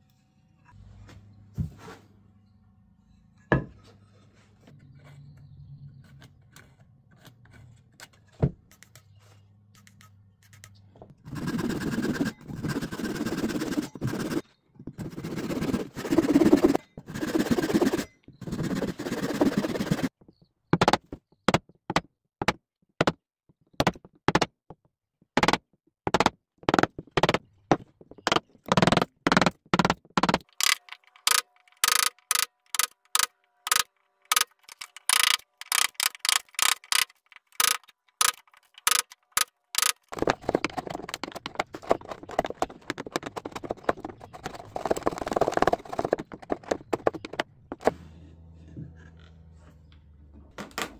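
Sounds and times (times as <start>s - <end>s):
scraping strokes on wood: 11.3s - 14.4s, 15.0s - 20.1s, 28.0s - 49.8s.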